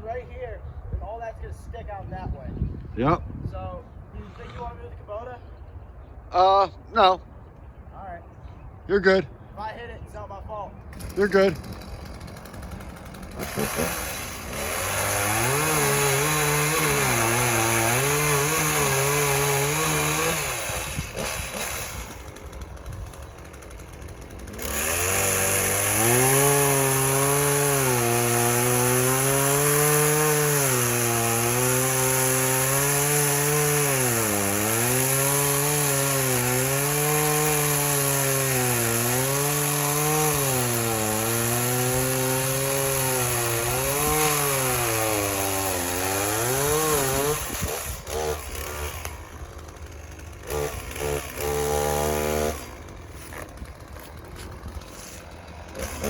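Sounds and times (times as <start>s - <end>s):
chainsaw cutting wood: 10.9s - 56.0s
chainsaw revving and idling: 10.9s - 56.0s.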